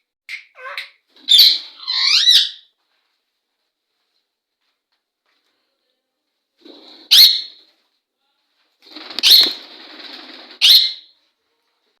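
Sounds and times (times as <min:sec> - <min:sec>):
parrots squawking: 0:00.4 - 0:02.7.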